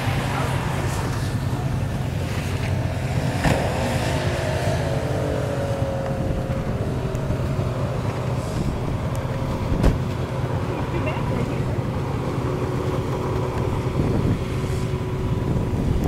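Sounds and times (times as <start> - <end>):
car engine climbing hill: 0.0 - 16.0
low rumble: 0.0 - 16.0.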